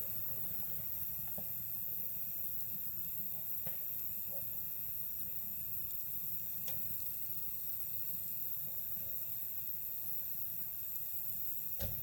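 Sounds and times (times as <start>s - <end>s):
campfire crackling: 0.0s - 3.9s
insects trilling: 0.0s - 12.0s.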